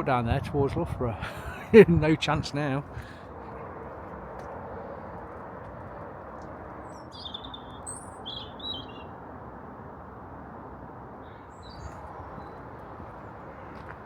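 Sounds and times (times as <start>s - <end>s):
small birds chirping: 6.7s - 9.2s, 11.2s - 14.0s.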